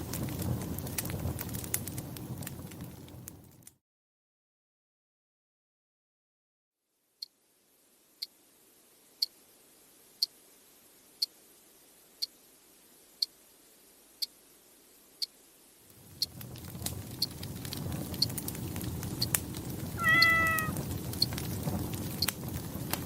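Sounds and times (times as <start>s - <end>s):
wood fire crackling: 0.0s - 3.8s, 15.9s - 23.0s
faint hiss: 6.8s - 23.0s.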